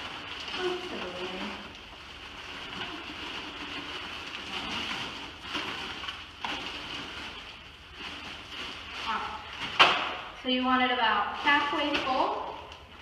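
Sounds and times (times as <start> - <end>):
ice cubes rattling into plastic bag: 0.0 - 10.4.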